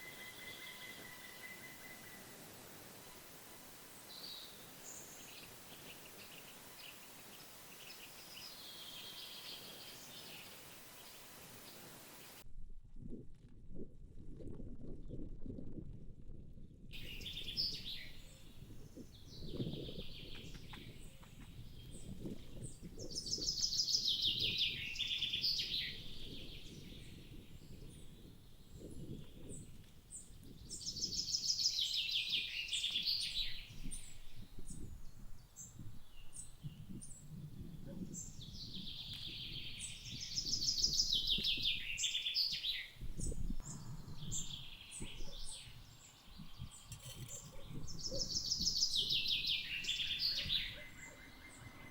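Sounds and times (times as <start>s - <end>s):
songbird trilling: 46.6s - 51.9s.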